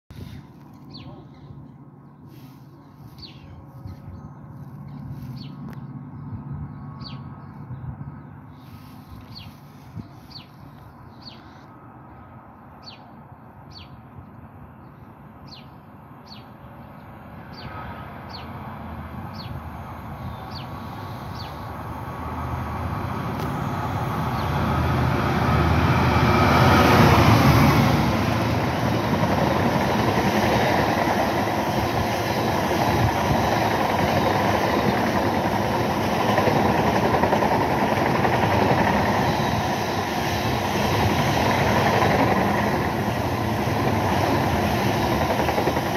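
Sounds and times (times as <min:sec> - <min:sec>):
diesel locomotive engine passing: 0:00.2 - 0:45.9.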